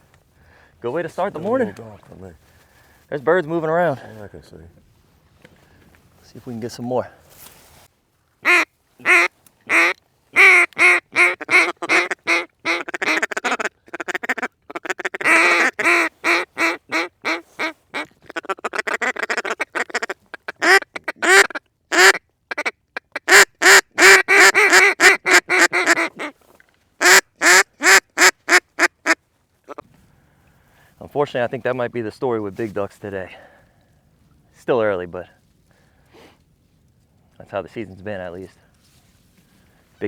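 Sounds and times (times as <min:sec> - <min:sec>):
duck call quacking: 0:08.4 - 0:26.4, 0:27.0 - 0:29.8.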